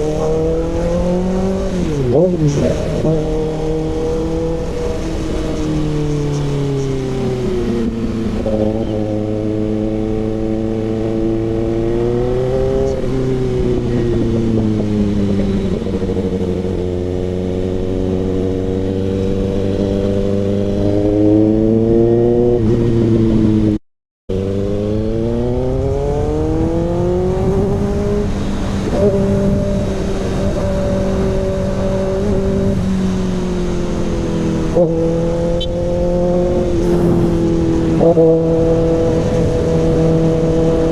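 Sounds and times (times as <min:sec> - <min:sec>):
low rush: 0:00.0 - 0:09.8, 0:32.7 - 0:40.5
motorcycle engine revving: 0:00.0 - 0:40.9.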